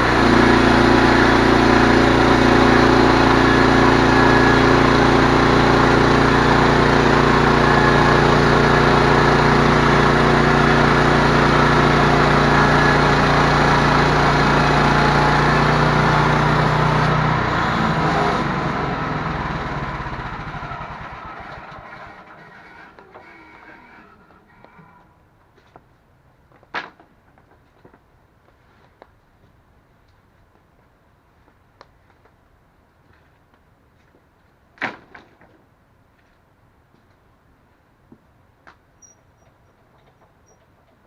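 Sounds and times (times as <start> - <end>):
engine idling: 0.0 - 23.2.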